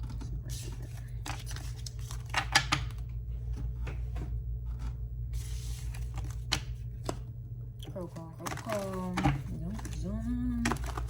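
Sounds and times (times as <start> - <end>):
cards being shuffled: 0.0 - 3.1, 5.4 - 7.2, 8.0 - 11.0
low hum: 0.0 - 11.0.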